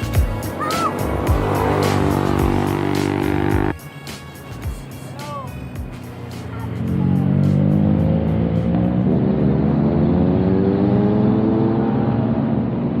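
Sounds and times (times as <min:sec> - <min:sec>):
vehicle engine accelerating: 0:00.0 - 0:03.8, 0:04.8 - 0:13.0.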